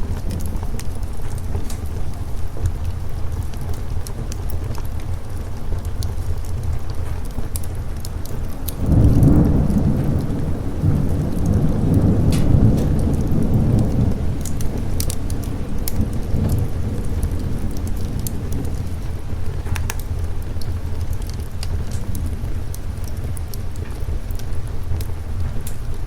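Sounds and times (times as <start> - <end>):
steady rain: 0.0 - 26.0
wood fire crackling: 0.0 - 26.0
rolling thunder: 8.3 - 25.7.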